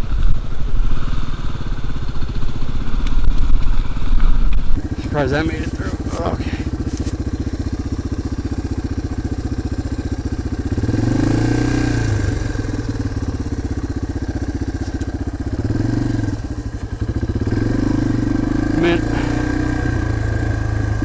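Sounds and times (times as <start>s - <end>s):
dirt bike engine running: 4.8s - 21.0s.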